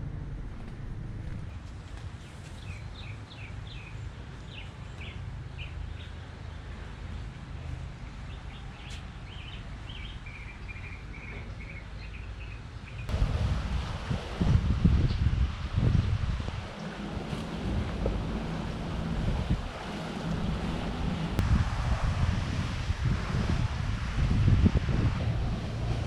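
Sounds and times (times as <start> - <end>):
low outdoor rumble: 0.0 - 26.0
bird chirping: 8.3 - 13.1.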